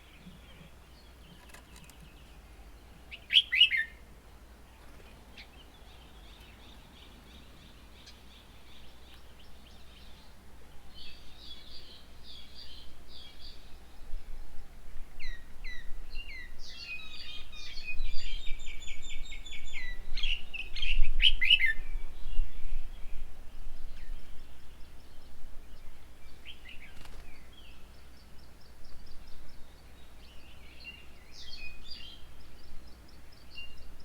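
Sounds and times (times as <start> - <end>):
small birds chirping: 0.0 - 14.4, 15.2 - 34.0
downward-sweeping bird calls: 3.0 - 4.0.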